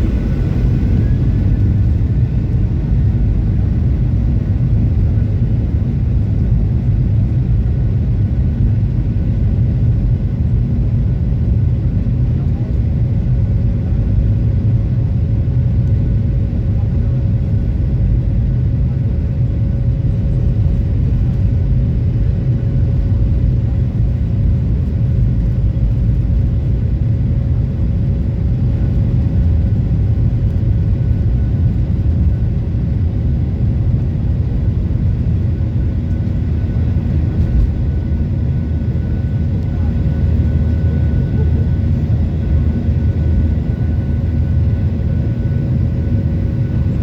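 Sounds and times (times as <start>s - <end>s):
steady engine hum: 0.0s - 6.2s
jet engines rumbling: 0.0s - 7.3s, 16.5s - 47.0s.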